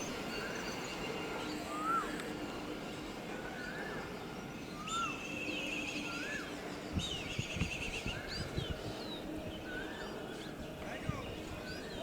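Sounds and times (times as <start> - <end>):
birds whistling and chirping: 1.6 - 2.2, 4.7 - 12.0.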